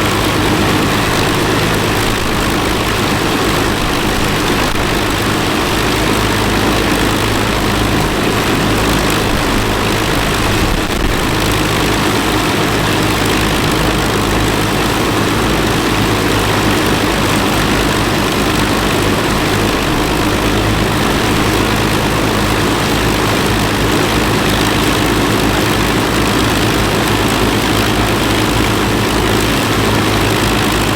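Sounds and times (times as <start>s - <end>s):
aircraft piston engines idling: 0.0s - 30.9s.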